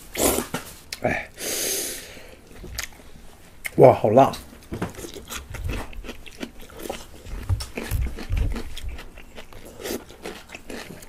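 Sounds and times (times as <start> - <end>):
chewing and crunching food: 2.4 - 3.8, 4.6 - 11.0.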